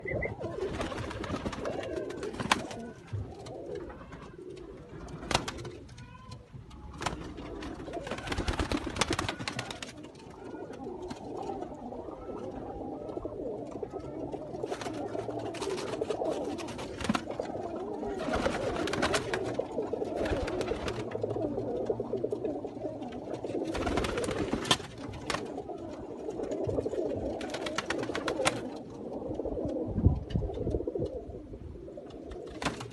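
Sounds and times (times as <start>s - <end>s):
pigeons cooing: 0.0s - 32.9s.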